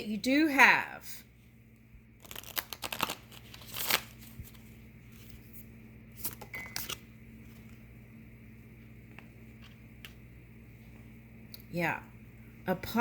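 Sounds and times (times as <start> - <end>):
cards rustling and sliding: 2.2 - 7.8.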